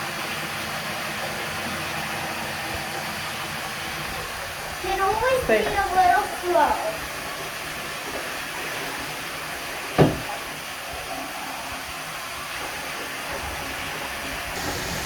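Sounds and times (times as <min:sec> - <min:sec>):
water running into bathtub: 0:00.0 - 0:15.0
sharp knock: 0:10.0 - 0:10.3.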